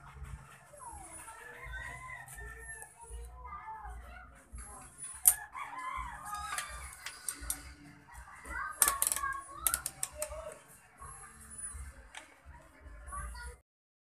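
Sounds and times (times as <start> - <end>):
rooster crowing: 1.5 - 2.9, 5.3 - 7.5.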